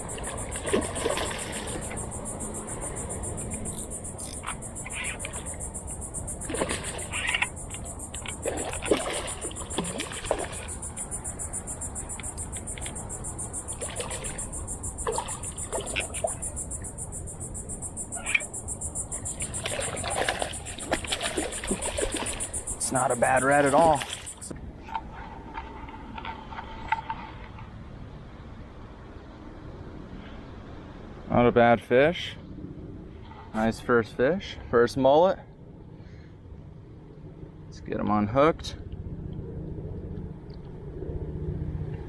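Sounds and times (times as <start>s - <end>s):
water splashes from a hooked fish: 0.0s - 2.2s, 6.2s - 11.2s, 13.6s - 16.5s, 19.1s - 24.5s
low rush of wind: 0.0s - 23.3s, 23.9s - 42.0s
continuous high buzz: 0.0s - 24.8s.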